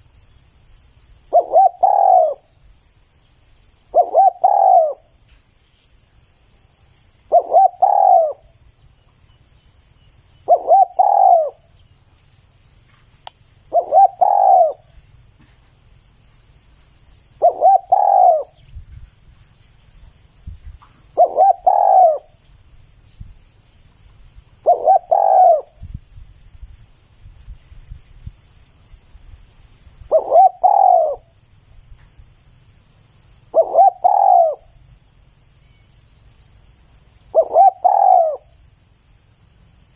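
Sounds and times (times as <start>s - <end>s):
dove cooing: 1.3s - 2.5s, 3.9s - 5.2s, 7.3s - 8.6s, 10.4s - 11.7s, 13.6s - 15.6s, 17.4s - 18.6s, 20.9s - 22.4s, 24.6s - 26.0s, 30.1s - 31.3s, 33.5s - 34.8s, 37.3s - 38.6s.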